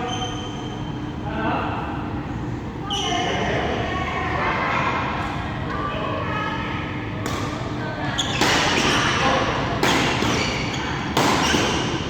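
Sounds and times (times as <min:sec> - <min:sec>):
racket striking shuttlecock: 0:11.1 - 0:12.0.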